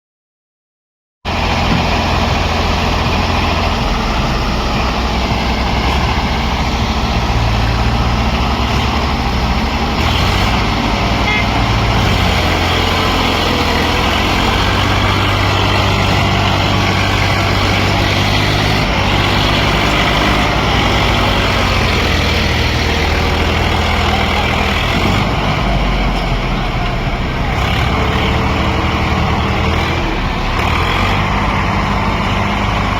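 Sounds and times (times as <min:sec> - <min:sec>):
tractor diesel engine running: 0:01.3 - 0:32.9.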